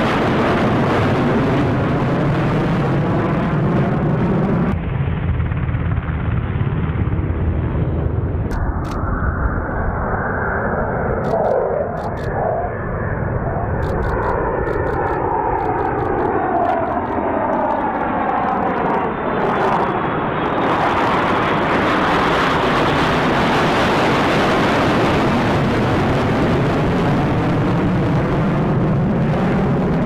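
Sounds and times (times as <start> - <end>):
fighter jet passing: 0.0 - 30.0
steady jet rushing: 7.8 - 30.0.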